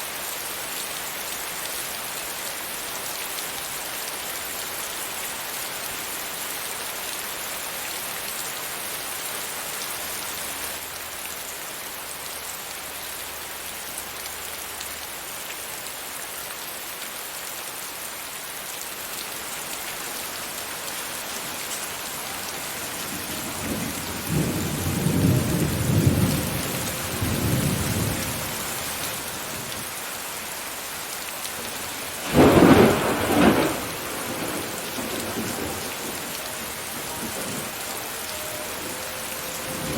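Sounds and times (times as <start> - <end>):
steady rain: 0.0 - 39.9
rolling thunder rumble: 23.2 - 28.7, 32.2 - 38.0
sharp thunderclap: 32.2 - 35.8.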